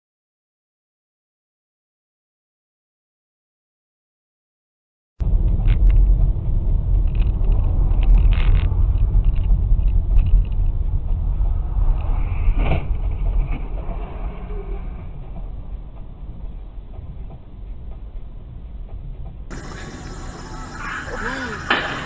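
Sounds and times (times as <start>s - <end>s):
car engine and road noise: 5.2s - 22.0s.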